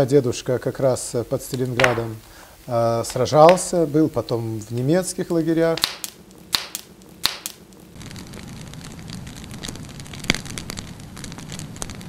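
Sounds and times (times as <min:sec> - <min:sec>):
low steady hiss: 0:00.0 - 0:12.0
wood fire crackling: 0:00.0 - 0:12.0.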